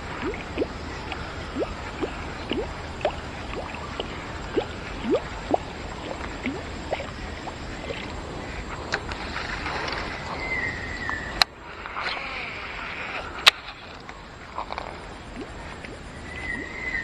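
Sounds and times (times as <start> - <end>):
water dripping into water: 0.0 - 8.2, 15.3 - 16.8
steady hiss: 0.0 - 17.0.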